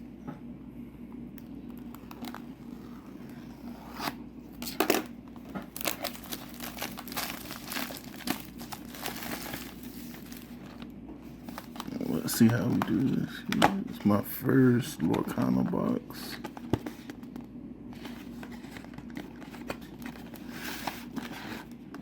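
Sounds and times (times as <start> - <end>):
shrink wrap crinkling and tearing: 1.7 - 14.2.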